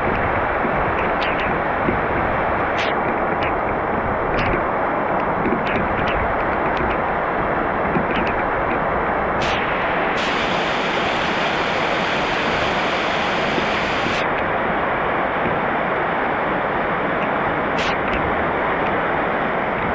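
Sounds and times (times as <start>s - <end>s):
heavy rain falling: 9.4s - 14.2s.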